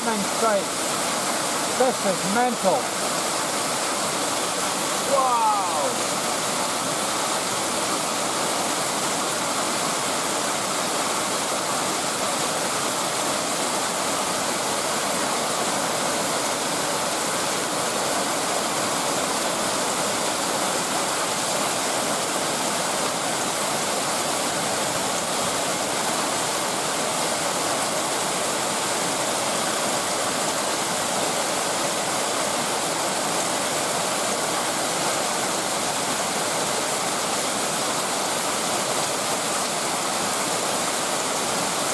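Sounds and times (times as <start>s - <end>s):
heavy rain downpour: 0.0s - 41.9s.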